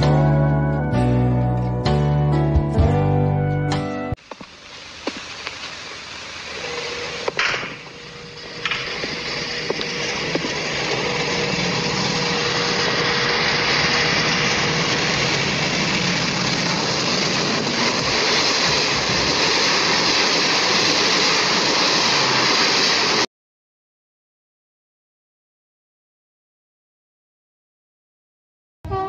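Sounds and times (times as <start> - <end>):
train rushing past: 6.6 - 23.3.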